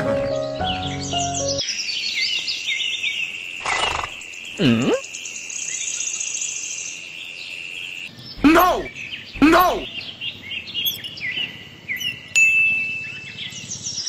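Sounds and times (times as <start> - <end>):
birds chirping: 0.2 - 12.4
insect trilling: 3.6 - 5.2, 8.4 - 9.9.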